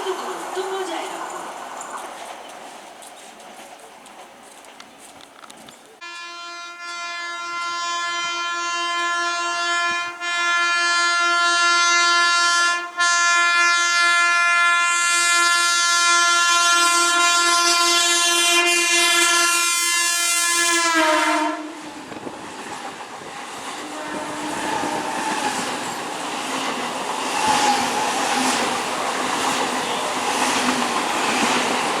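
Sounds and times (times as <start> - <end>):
train running noise: 0.0 - 6.2, 16.6 - 32.0
train horn blast: 6.0 - 21.9, 23.8 - 25.8.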